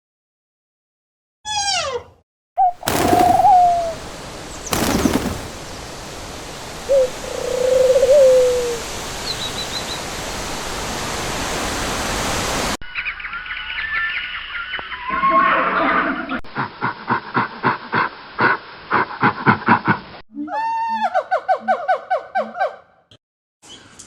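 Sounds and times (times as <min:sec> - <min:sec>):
falling animal cry: 0:02.8 - 0:04.0
steady hiss: 0:02.9 - 0:12.6.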